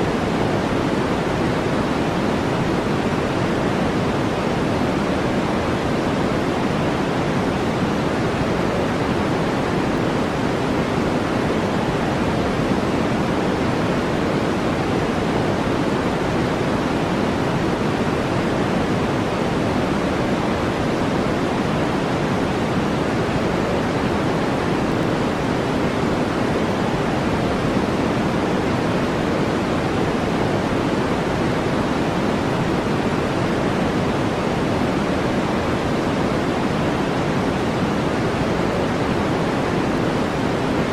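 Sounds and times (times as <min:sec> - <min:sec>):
steady white noise hiss: 0:00.0 - 0:40.9.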